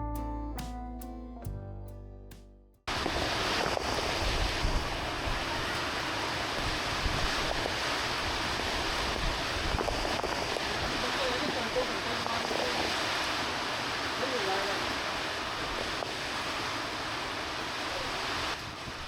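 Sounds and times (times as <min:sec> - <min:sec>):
wind on microphone: 0:02.9 - 0:14.0, 0:17.9 - 0:19.0
heavy rain hissing: 0:02.9 - 0:19.0.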